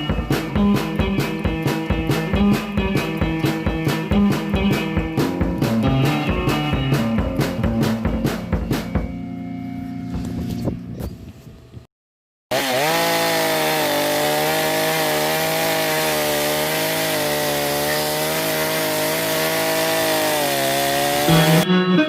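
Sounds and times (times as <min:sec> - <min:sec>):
chainsaw engine at high revs: 0:00.0 - 0:05.4, 0:12.5 - 0:21.6.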